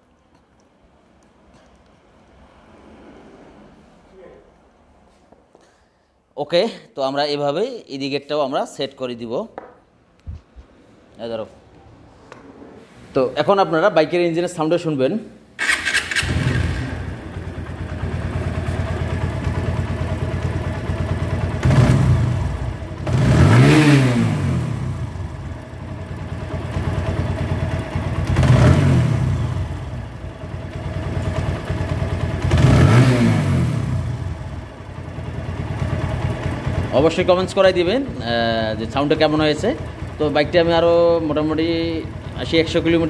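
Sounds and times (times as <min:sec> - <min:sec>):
motorcycle engine idling and revving: 0:15.6 - 0:43.0.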